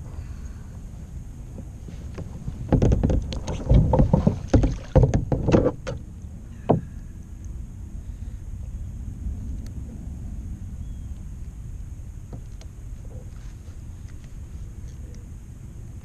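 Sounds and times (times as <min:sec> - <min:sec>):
fish splashing against kayak: 0:02.0 - 0:06.0.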